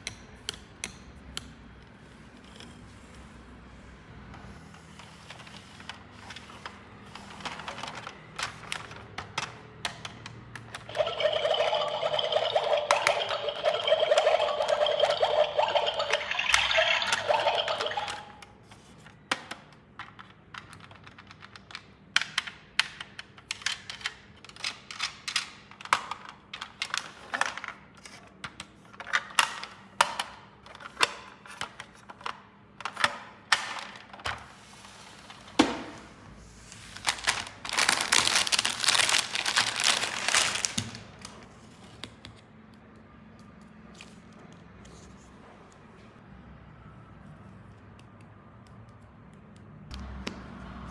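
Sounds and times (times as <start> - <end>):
packaging crinkling: 37.0 - 41.4.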